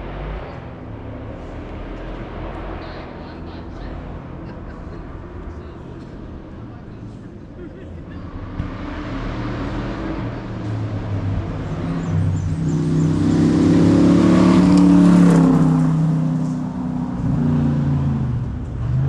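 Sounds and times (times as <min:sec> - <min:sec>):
race car engine accelerating: 0:08.2 - 0:19.0.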